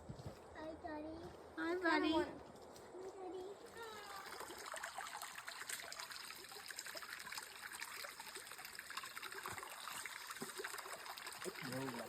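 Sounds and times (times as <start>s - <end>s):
stream water trickling: 3.6s - 12.0s.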